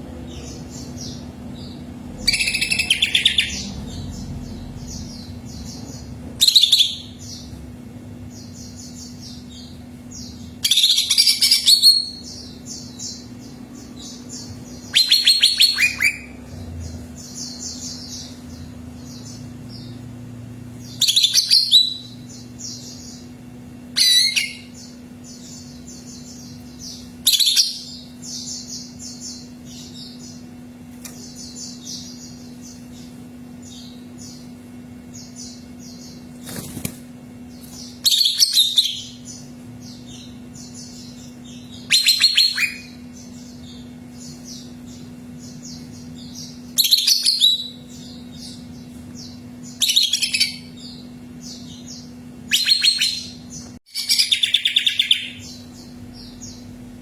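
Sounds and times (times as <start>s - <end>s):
soft bird chirping: 0.0s - 57.0s
steady low hum: 0.0s - 57.0s
bird singing loud bursts: 14.0s - 18.4s, 38.0s - 56.8s.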